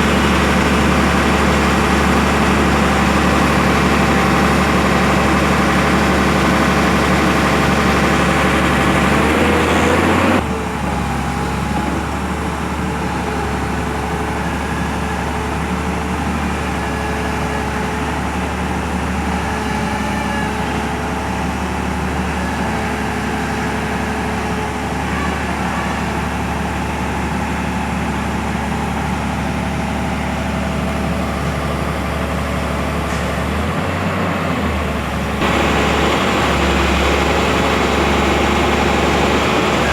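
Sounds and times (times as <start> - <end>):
heavy crane engine running: 0.0 - 39.9.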